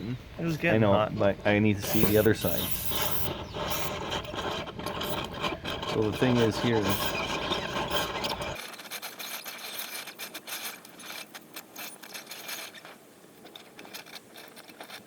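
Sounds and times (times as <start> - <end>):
tools scraping on metal: 0.5 - 15.0.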